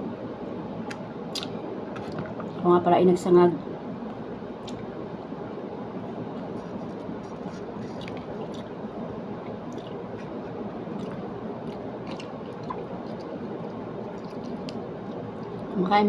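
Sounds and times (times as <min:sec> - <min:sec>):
chewing food: 0:00.9 - 0:02.6, 0:04.6 - 0:05.0, 0:06.0 - 0:15.8.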